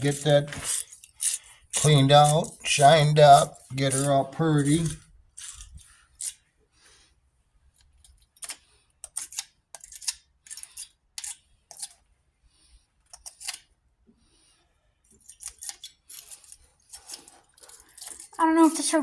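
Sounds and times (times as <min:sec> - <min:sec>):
brush scratching metal clamp: 0:00.0 - 0:06.4, 0:15.8 - 0:18.9.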